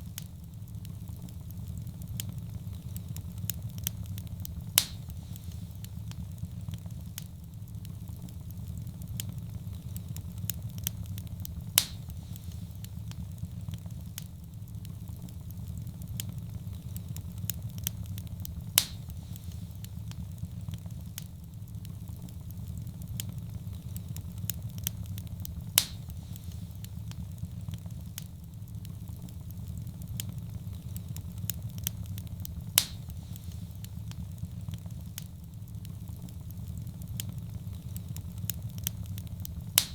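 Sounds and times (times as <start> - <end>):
wood fire crackling: 0.0 - 39.9
sharp pop of fire: 4.5 - 6.2, 11.5 - 13.2, 18.5 - 20.3, 25.5 - 27.2, 32.6 - 34.2, 39.6 - 39.9.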